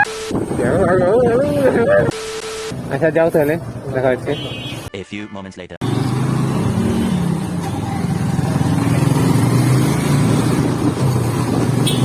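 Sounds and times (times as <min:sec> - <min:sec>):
wind and road noise: 0:00.0 - 0:05.0, 0:05.8 - 0:12.0
motorcycle engine running: 0:05.8 - 0:12.0.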